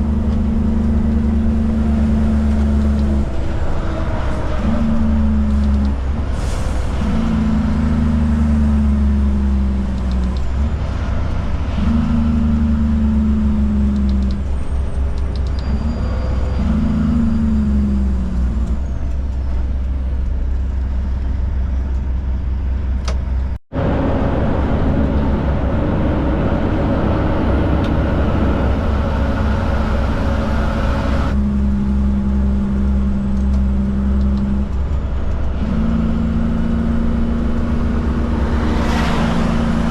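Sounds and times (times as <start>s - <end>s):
diesel truck engine drone: 0.0s - 39.9s.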